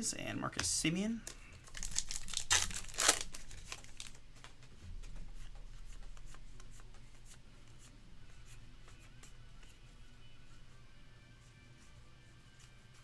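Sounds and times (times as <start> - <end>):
trading cards rustling: 0.5 - 4.2
pack wrapper crinkle: 1.6 - 4.2.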